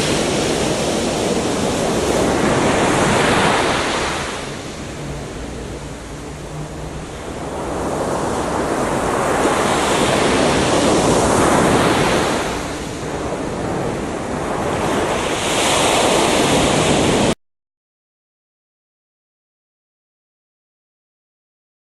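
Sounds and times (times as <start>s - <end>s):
ocean waves breaking on beach: 0.0s - 17.4s.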